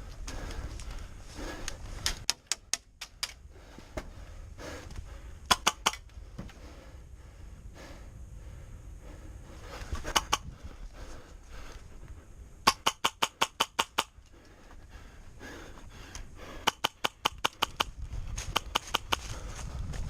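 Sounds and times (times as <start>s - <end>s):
airsoft gun shots: 5.5s - 6.0s, 10.1s - 10.4s, 12.6s - 14.1s.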